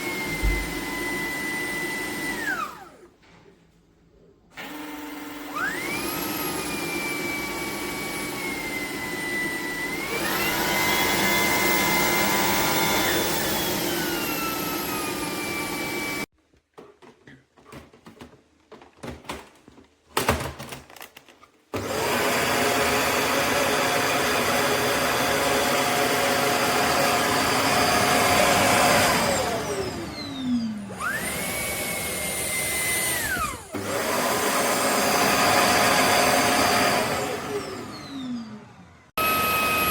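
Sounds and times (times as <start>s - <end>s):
vacuum motor whine: 0.0s - 3.1s, 4.6s - 16.3s, 21.8s - 39.9s.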